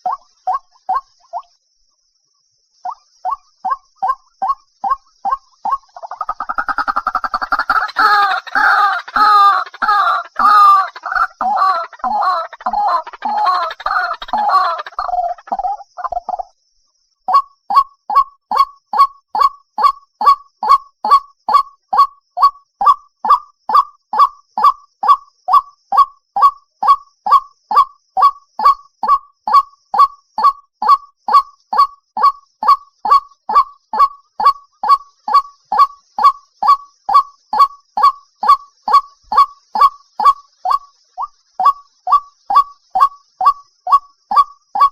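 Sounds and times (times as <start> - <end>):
waterhen calling: 0.0 - 1.5, 2.9 - 16.4, 30.4 - 44.9.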